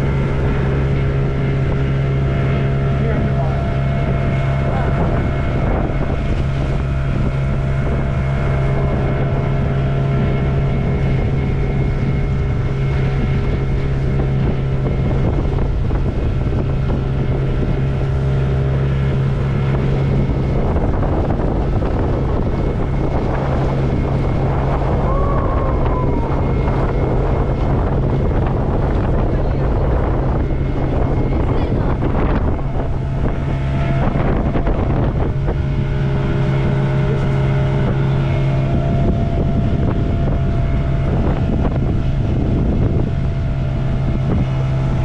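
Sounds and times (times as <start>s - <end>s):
motorboat engine droning: 0.0s - 45.0s
water noise: 0.0s - 45.0s.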